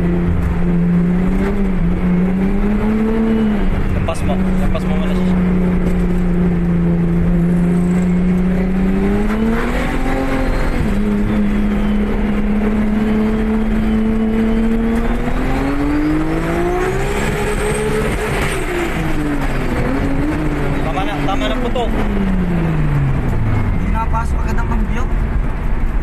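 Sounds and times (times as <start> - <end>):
car engine revving from inside: 0.0 - 24.9.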